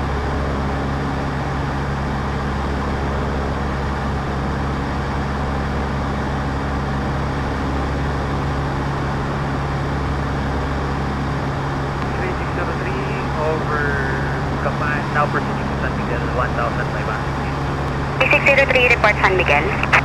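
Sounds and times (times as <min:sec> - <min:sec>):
airplane engine and propeller droning: 0:00.0 - 0:20.0
airflow noise: 0:09.8 - 0:20.0.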